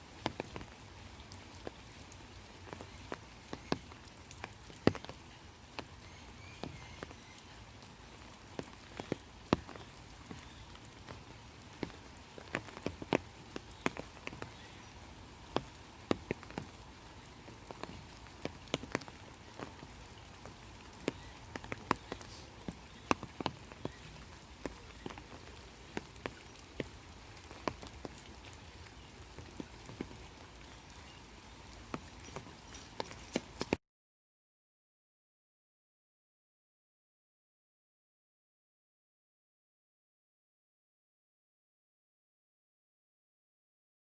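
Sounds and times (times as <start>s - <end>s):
faint rain patter: 0.0s - 33.8s
raindrops tapping: 0.0s - 33.8s.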